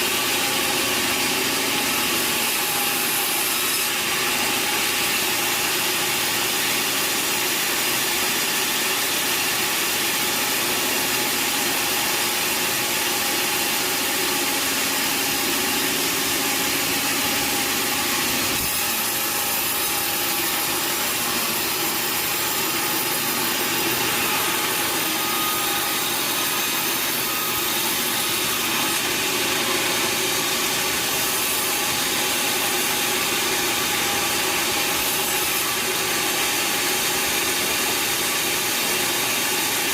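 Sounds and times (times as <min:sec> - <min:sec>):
sawmill saw cutting log: 0:00.0 - 0:39.9.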